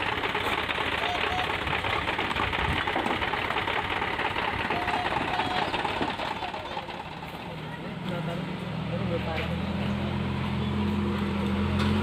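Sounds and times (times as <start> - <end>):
diesel truck engine clattering: 0.0 - 12.0.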